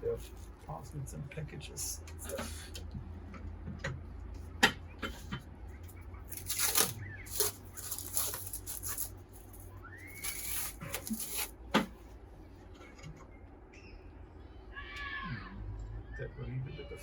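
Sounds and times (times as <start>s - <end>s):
scraping and rustling on metal: 6.3s - 11.6s.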